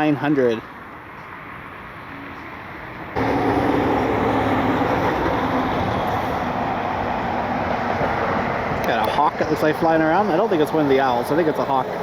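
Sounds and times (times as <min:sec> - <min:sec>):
jet engines roaring: 0:03.2 - 0:12.0.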